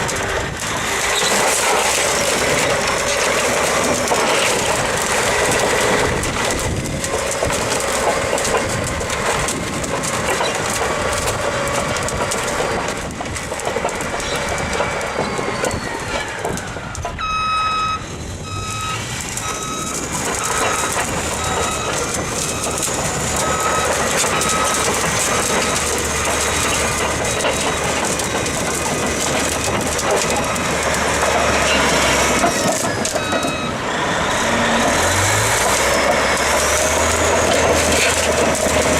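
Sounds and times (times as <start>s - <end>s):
heavy machinery running: 0.0s - 38.9s
reversing alarm beeping: 14.2s - 33.9s.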